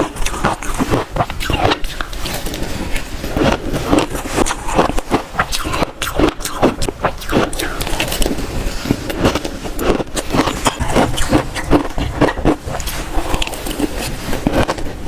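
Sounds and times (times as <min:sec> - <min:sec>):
ice being crunched and chewed: 0:00.0 - 0:15.0.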